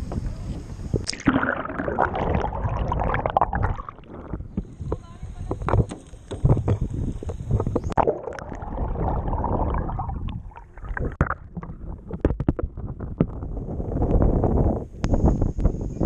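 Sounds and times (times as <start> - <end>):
water splashing around kayak: 1.0 - 14.1.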